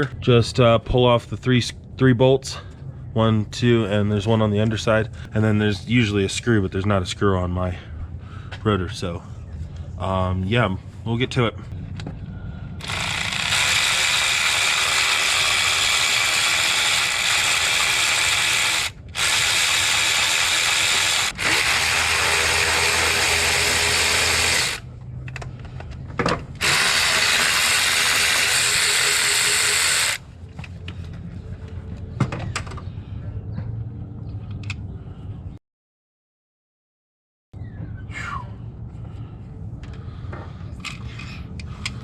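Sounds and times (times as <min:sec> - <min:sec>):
cordless power tool running: 0:12.8 - 0:24.9, 0:26.6 - 0:30.2.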